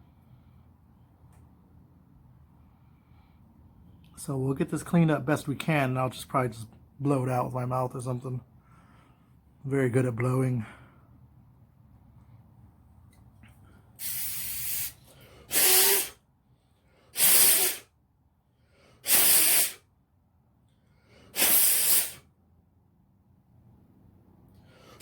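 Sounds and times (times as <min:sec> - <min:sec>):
person blowing puffs of air: 0:13.7 - 0:16.2, 0:16.8 - 0:18.0, 0:18.6 - 0:19.9, 0:21.0 - 0:22.3, 0:24.6 - 0:25.0.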